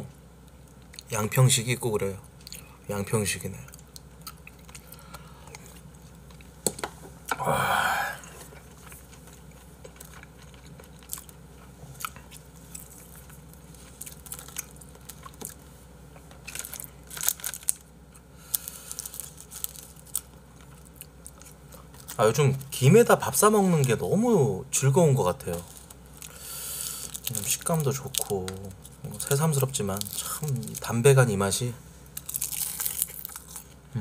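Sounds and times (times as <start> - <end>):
chewing and biting: 8.6 - 15.6, 32.2 - 33.8.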